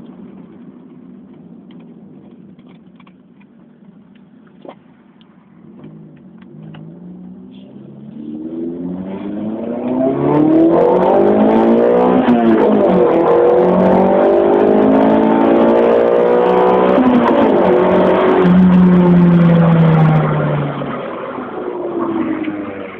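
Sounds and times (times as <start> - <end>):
car engine accelerating hard: 0.0 - 22.9.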